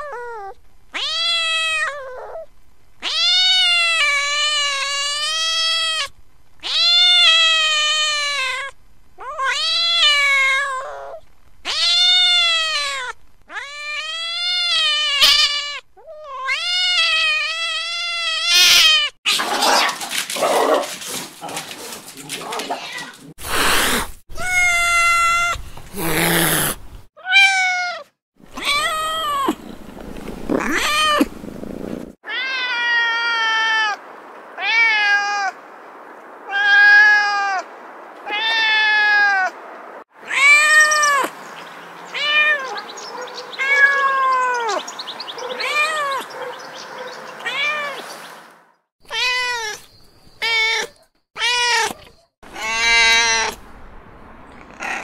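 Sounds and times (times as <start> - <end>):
cat meowing: 0.0 - 19.8, 22.5 - 29.7, 30.5 - 31.3, 32.2 - 34.0, 34.6 - 35.6, 36.5 - 37.6, 38.2 - 39.6, 40.2 - 41.3, 42.1 - 42.9, 43.6 - 44.8, 45.5 - 46.3, 47.4 - 48.0, 49.1 - 53.6.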